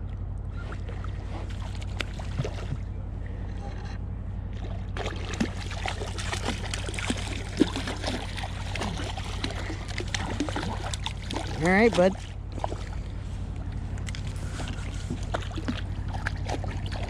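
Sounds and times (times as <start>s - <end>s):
water splashing and crackling: 0.0s - 2.9s, 4.5s - 17.0s
low motor hum: 0.0s - 17.0s.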